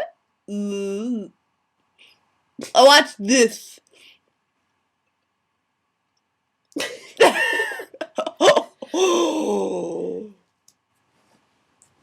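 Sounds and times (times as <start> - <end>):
person crying out: 8.8 - 10.4
person groaning: 8.9 - 10.4.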